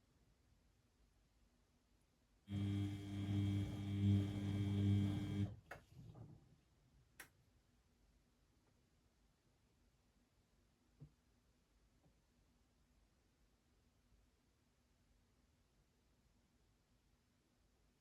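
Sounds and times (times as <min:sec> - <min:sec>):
washing machine hum and buzz: 0:02.5 - 0:06.3.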